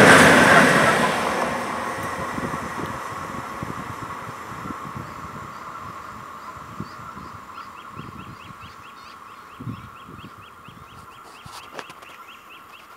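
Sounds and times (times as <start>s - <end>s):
freight train humming: 0.0s - 11.2s
bird chirping: 5.0s - 12.9s.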